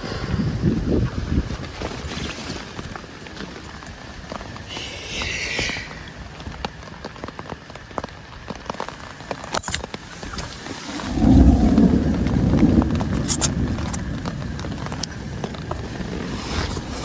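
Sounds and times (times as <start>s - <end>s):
heavy rain drops tapping: 1.1s - 4.8s, 5.9s - 17.0s
loud low rumble: 10.9s - 14.9s.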